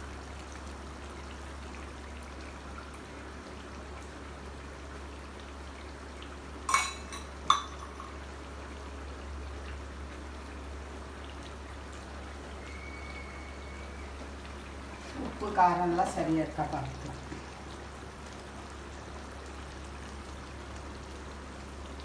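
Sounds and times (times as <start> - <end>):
gravy bubbling in a pot: 0.0 - 22.0
sharp ringing clinks: 6.7 - 8.2.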